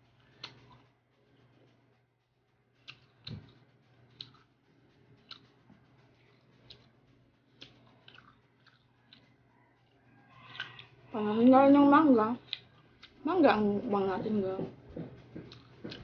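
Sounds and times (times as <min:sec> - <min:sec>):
chewing crisp mango: 0:00.2 - 0:00.9, 0:02.8 - 0:04.5, 0:05.1 - 0:05.6, 0:06.3 - 0:11.0, 0:12.4 - 0:13.2, 0:15.0 - 0:16.0.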